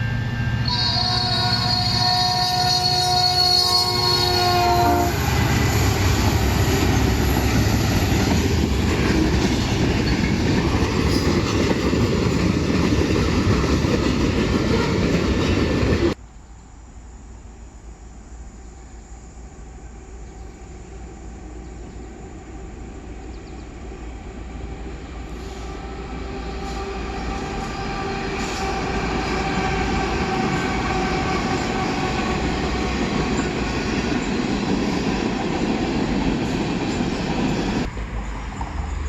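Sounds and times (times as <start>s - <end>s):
train rolling on rails: 0.0s - 39.0s.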